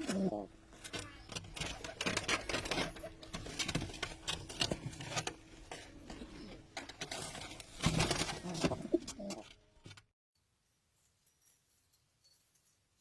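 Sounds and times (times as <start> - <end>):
pigeons cooing: 0.0 - 3.3, 5.7 - 9.6
clicks and scuffling: 0.0 - 10.1.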